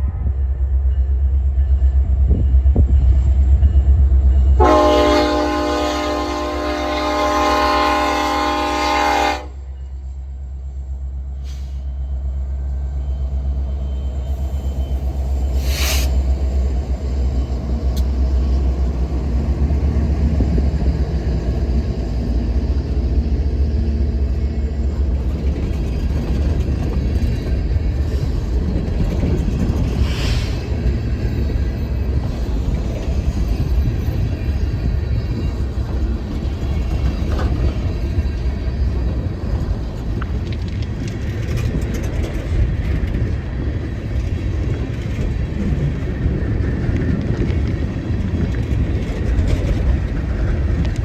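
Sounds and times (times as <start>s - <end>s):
low rumble of train rolling: 0.0s - 51.0s
locomotive air horn: 4.6s - 9.6s.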